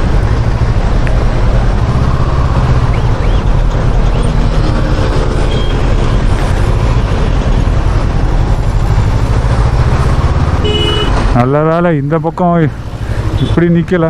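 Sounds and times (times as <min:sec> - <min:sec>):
faint traffic: 0:00.0 - 0:14.0
motorcycle engine and wind rumble: 0:00.0 - 0:14.0.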